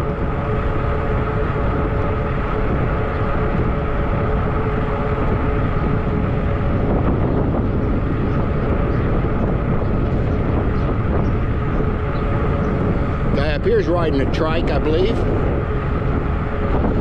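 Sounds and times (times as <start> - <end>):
faint electric bike whine: 0.0 - 17.0
wind rushing over microphone: 0.0 - 17.0.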